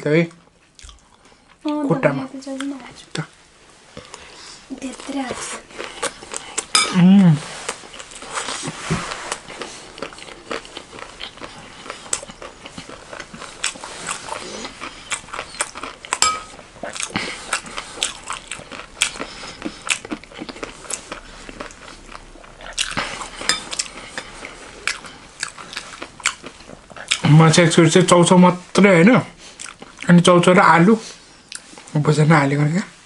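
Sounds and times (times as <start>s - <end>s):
crunchy chewing: 5.0s - 6.7s, 7.6s - 27.4s, 29.4s - 30.2s.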